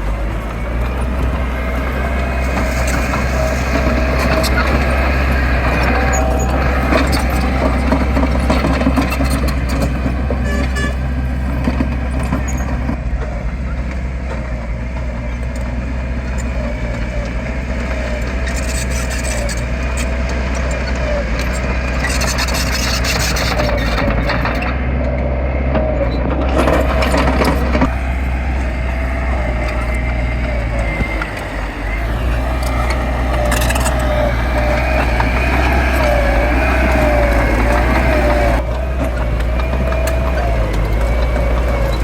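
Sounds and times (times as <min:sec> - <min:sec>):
rough scraping noise: 0:00.0 - 0:13.0, 0:25.8 - 0:42.0
heavy machinery diesel engine: 0:00.0 - 0:42.0.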